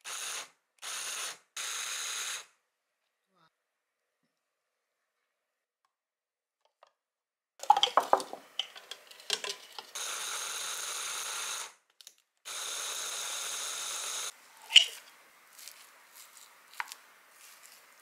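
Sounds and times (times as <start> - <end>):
food clattering into plastic bowl: 7.6 - 9.6
hand blender whirring: 12.5 - 14.9.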